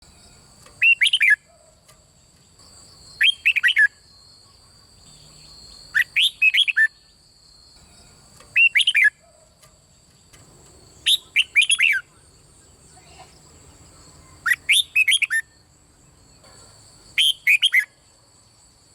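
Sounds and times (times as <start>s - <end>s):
bird singing whistled phrases: 0.8s - 1.5s, 3.2s - 4.2s, 5.4s - 7.2s, 8.5s - 9.2s, 11.0s - 12.1s, 14.2s - 15.6s, 17.2s - 18.0s.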